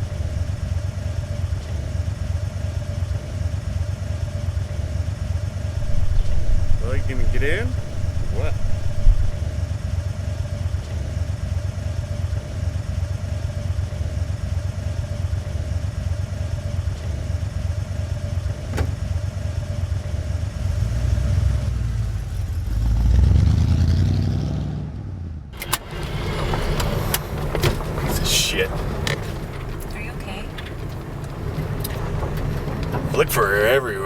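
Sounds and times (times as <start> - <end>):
car engine running: 0.0 - 23.0, 25.5 - 34.0
busy clatter: 25.6 - 33.8.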